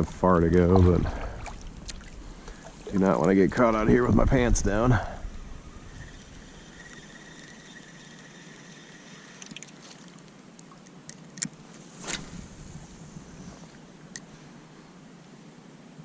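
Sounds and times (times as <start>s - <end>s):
river water running: 0.0s - 16.0s
brief swish: 11.7s - 13.8s.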